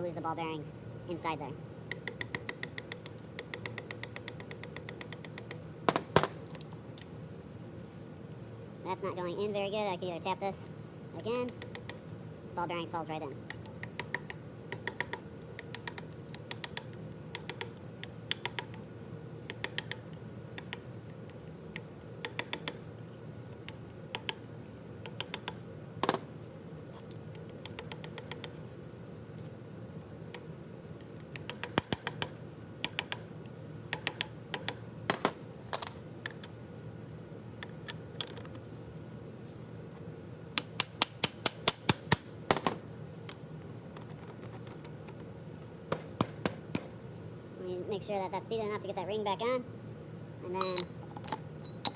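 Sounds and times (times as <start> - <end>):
metal clicks and taps: 1.9 - 7.1, 11.3 - 12.1, 13.5 - 18.8, 19.5 - 26.2, 27.0 - 29.6, 30.3 - 33.3, 33.9 - 36.6, 37.6 - 38.6, 40.6 - 45.3.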